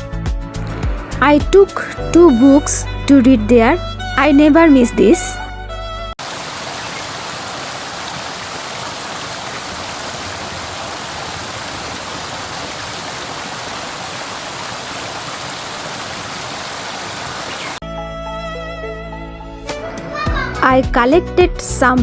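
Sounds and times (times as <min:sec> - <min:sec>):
rushing water: 0:06.2 - 0:17.8.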